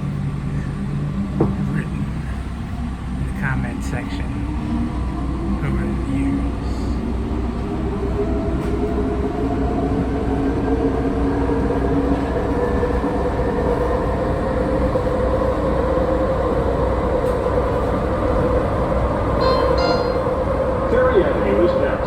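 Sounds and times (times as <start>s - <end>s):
railcar rumble: 0.0s - 22.0s
rising tone: 19.4s - 20.5s.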